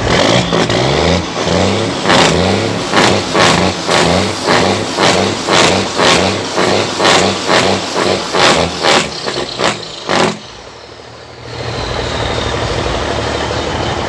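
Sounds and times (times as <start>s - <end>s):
sharp irregular hits: 0.0s - 10.8s
truck engine idling: 0.0s - 14.0s.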